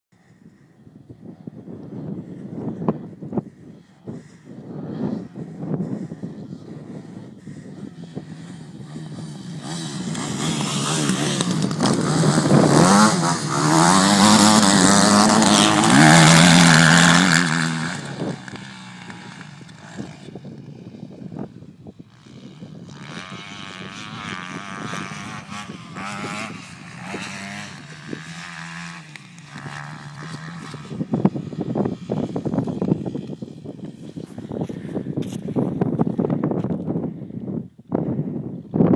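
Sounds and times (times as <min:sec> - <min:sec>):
dirt bike engine revving: 0:07.8 - 0:20.4, 0:22.1 - 0:34.9.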